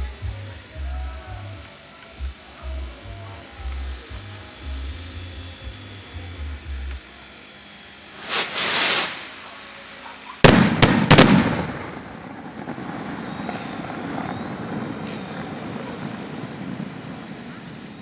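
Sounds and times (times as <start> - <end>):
firework hissing: 0.0 - 18.0
firework bangs: 8.1 - 9.6, 10.4 - 18.0.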